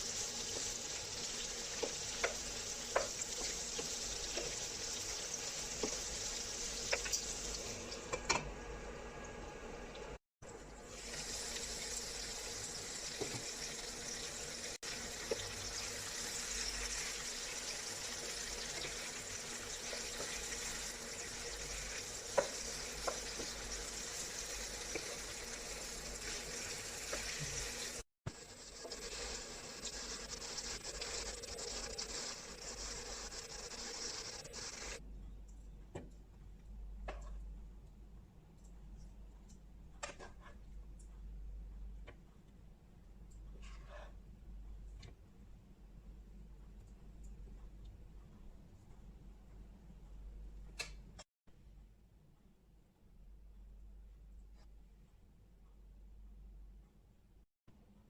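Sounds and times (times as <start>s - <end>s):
food sizzling in a frying pan: 0.0s - 9.4s, 10.8s - 35.0s.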